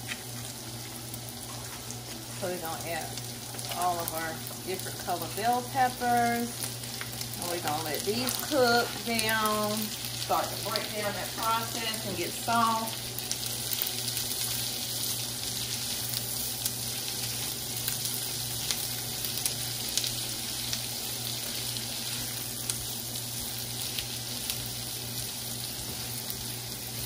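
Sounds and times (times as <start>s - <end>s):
vegetables sizzling in a skillet: 0.0s - 27.0s.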